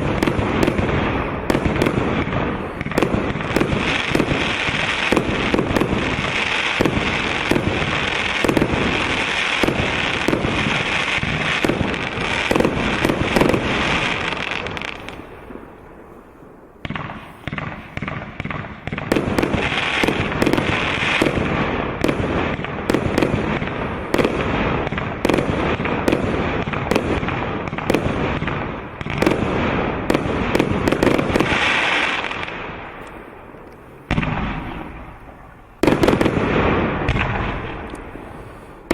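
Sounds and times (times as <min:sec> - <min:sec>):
fireworks shells popping and crackling: 0:00.0 - 0:15.7, 0:16.8 - 0:38.9
firework bang: 0:00.0 - 0:15.9, 0:34.1 - 0:37.9.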